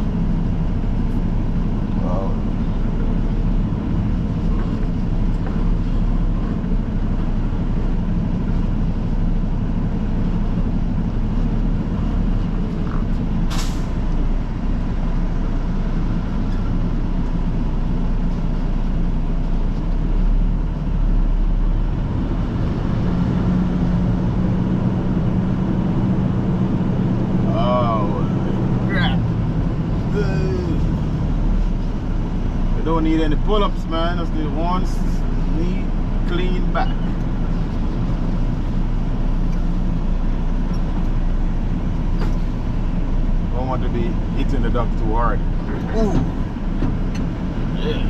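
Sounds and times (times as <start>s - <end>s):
diesel truck engine running: 0.0s - 48.0s
air brakes hiss: 13.5s - 14.0s.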